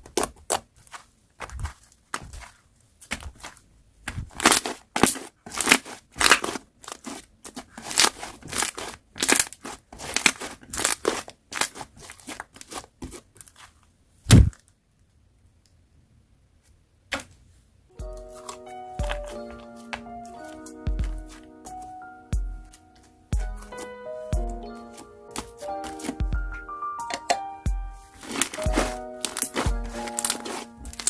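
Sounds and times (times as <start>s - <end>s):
thump: 14.3s - 14.5s
slime squishing: 28.2s - 31.0s.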